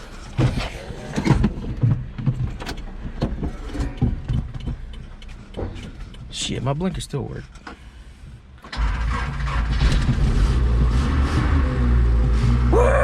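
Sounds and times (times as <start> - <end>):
engine cranking by starter motor: 8.6 - 12.7.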